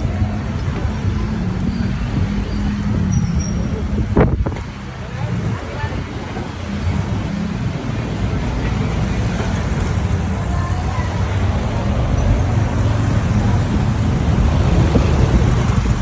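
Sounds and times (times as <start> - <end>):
road noise: 0.0 - 16.0
motorcycle engine drone: 11.3 - 16.0.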